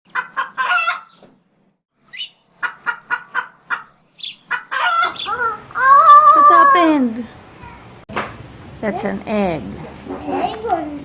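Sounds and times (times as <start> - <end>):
chicken chirps: 2.1 - 6.8.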